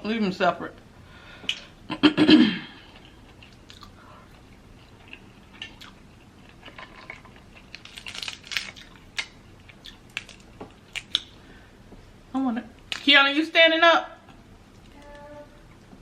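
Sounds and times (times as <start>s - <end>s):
soft chewing: 2.8s - 12.0s
crackles: 4.8s - 11.4s.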